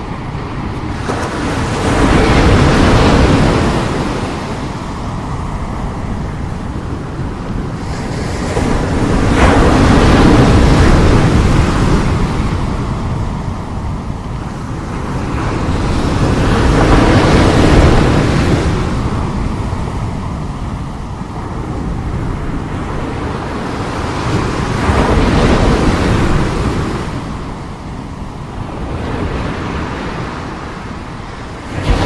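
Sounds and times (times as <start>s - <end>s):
sea waves breaking: 0.0s - 32.0s.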